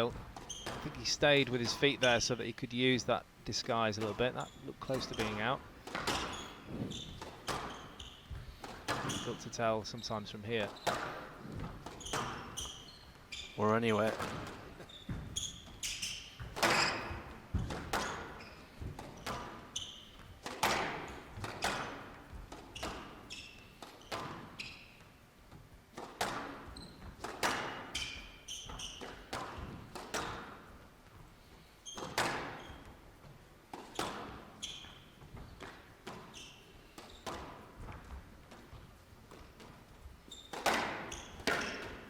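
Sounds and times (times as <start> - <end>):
shoes squeaking on court floor: 0.0 - 42.0
squash ball cracking off rackets: 4.9 - 9.3, 10.7 - 12.8, 15.8 - 19.7, 20.3 - 23.2, 26.0 - 30.7, 40.5 - 42.0.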